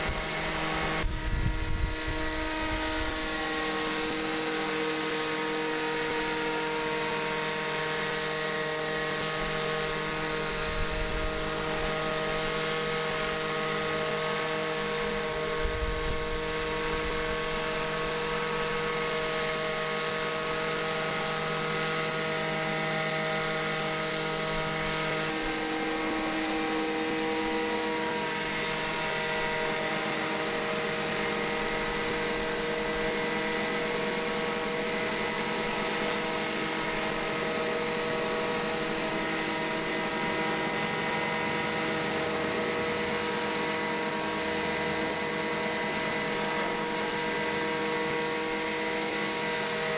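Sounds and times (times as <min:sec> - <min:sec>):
model helicopter engine drone: 0:00.0 - 0:49.9.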